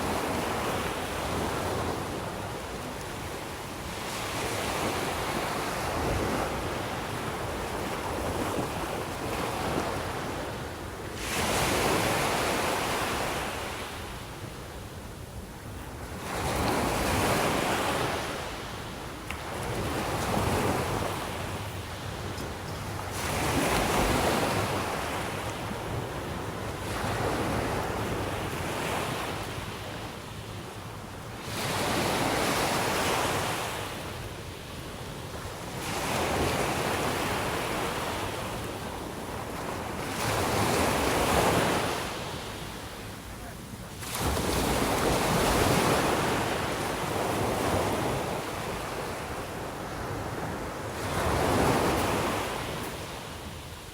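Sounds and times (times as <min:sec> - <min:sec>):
sea waves breaking on shore: 0:15.6 - 0:53.9.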